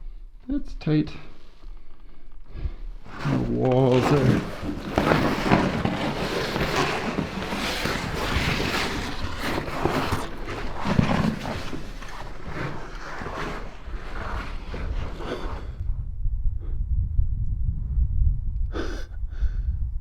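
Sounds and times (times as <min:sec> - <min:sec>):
clothing scraping against rock walls: 0:01.2 - 0:15.8.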